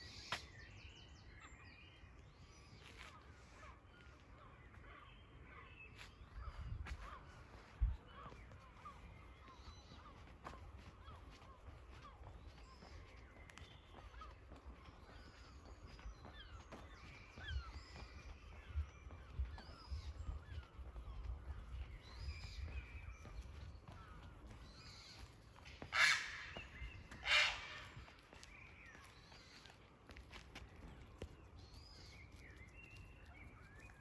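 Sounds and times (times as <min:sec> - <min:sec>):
songbirds chirping: 0:00.0 - 0:34.0
crow cawing: 0:25.9 - 0:28.1.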